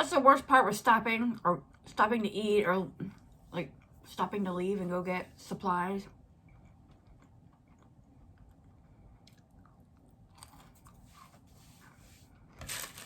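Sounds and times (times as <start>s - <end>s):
chewing food: 6.4s - 11.6s.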